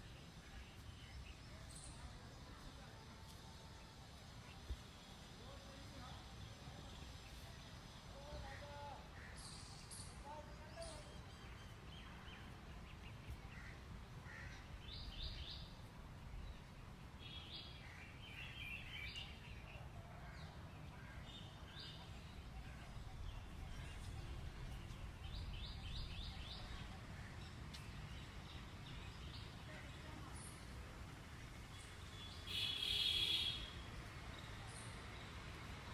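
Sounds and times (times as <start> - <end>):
birds chirping: 9.2 - 35.9.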